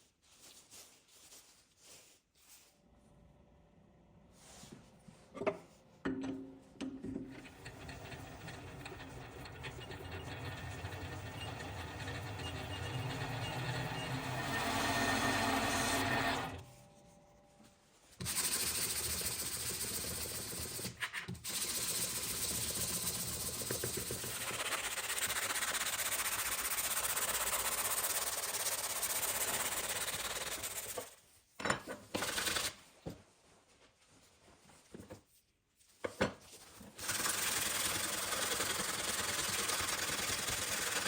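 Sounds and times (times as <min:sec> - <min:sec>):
humming machine: 0:07.4 - 0:17.3.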